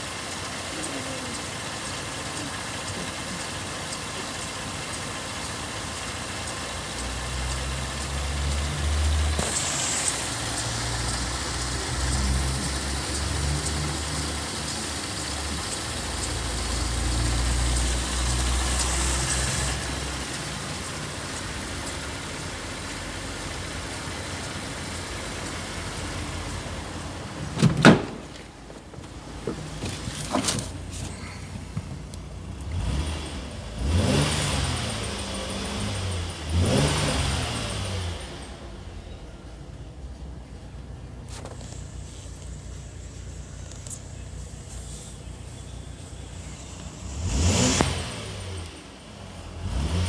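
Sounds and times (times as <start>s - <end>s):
car engine idling and revving: 0.0s - 50.0s
loud thump: 27.6s - 28.4s.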